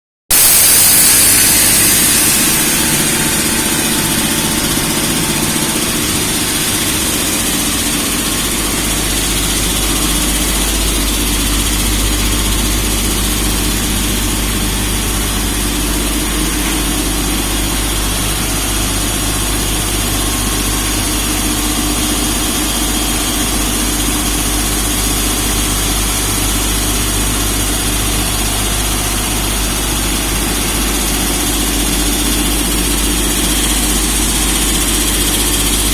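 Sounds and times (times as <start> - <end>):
sharp hiss: 0.3 - 19.2
air compressor running: 0.3 - 35.9.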